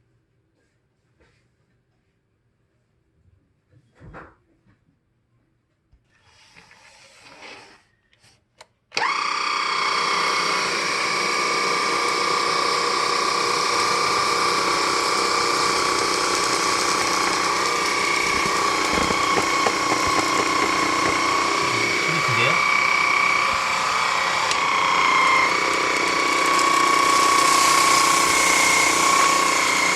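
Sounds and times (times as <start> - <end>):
stick vacuum cleaner whining: 9.0 - 29.9.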